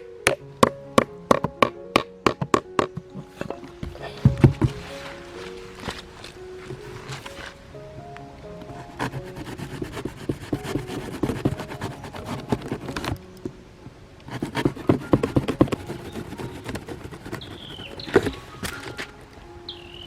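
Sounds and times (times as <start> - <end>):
hands knocking and scraping wood: 1.3 - 7.6, 9.0 - 13.2, 14.3 - 19.2
bird chirping call: 17.3 - 20.0.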